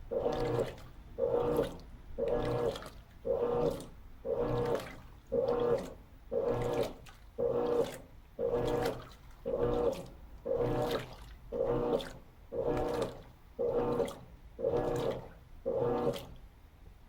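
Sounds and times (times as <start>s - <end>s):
motor hum: 0.0s - 16.4s
water sloshing: 0.0s - 16.4s
washing machine agitating: 0.0s - 16.6s.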